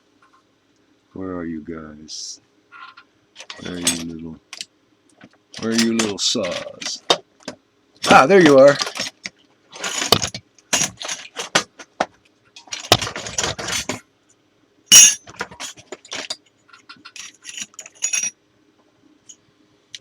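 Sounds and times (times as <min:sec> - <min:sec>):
metal saw blades clinking: 0:14.9 - 0:15.2.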